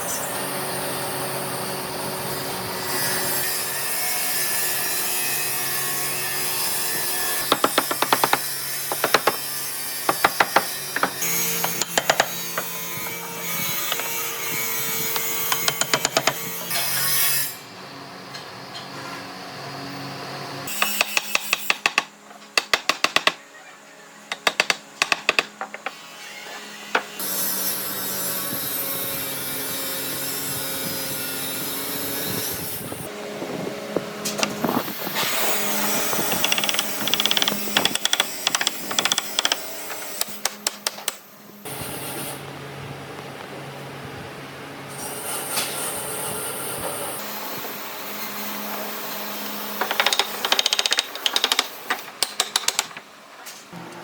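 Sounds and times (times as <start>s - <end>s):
sawing wood by hand: 2.8s - 17.6s, 24.3s - 32.8s, 34.7s - 41.2s, 47.2s - 53.0s.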